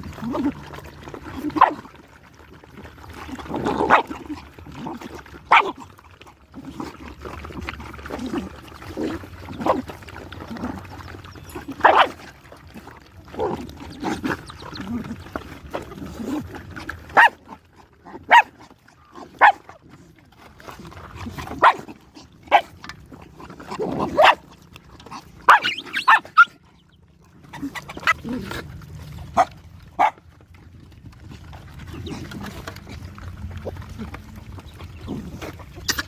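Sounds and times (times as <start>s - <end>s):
low steady hum: 0.0s - 36.0s
dog barking: 1.6s - 1.8s, 5.5s - 5.8s, 11.8s - 12.2s, 17.1s - 17.4s, 18.3s - 18.5s, 19.4s - 19.6s, 21.6s - 21.9s, 24.1s - 24.4s, 25.5s - 26.5s, 29.4s - 30.2s.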